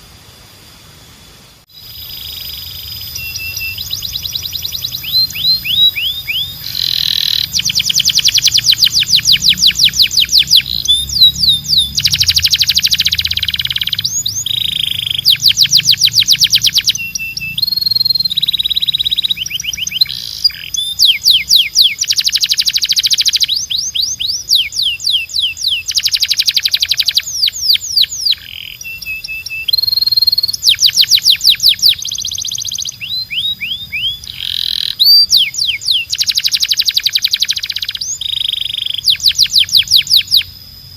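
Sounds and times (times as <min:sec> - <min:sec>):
canary singing trills: 0:01.7 - 0:40.8.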